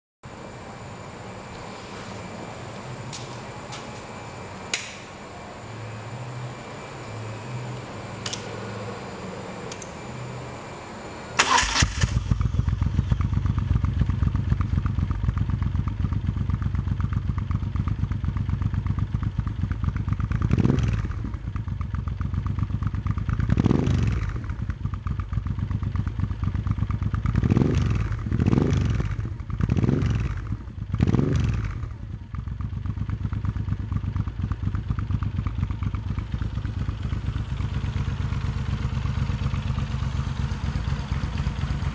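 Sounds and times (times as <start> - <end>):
engine cranking: 11.4 - 12.3
motorcycle engine idling: 11.4 - 41.9.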